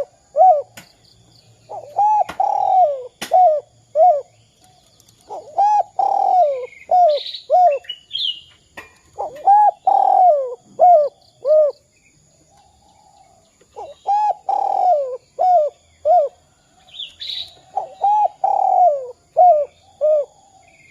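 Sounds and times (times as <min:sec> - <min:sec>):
dove cooing: 0:00.0 - 0:00.8, 0:01.7 - 0:08.0, 0:09.2 - 0:11.8, 0:13.0 - 0:16.5, 0:17.5 - 0:20.8
small birds chirping: 0:00.0 - 0:20.9.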